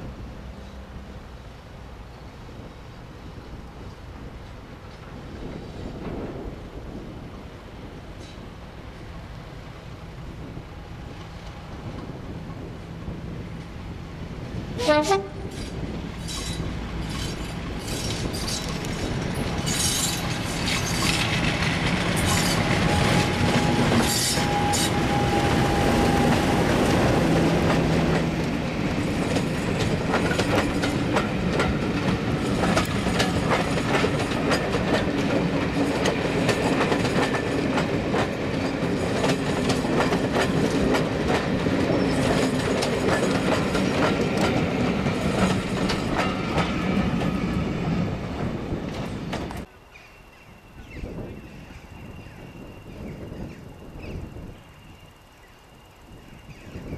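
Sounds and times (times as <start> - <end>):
diesel locomotive engine droning: 7.8 - 49.7
wheels squealing: 14.8 - 34.4
wheels clattering over rail joints: 14.9 - 49.7.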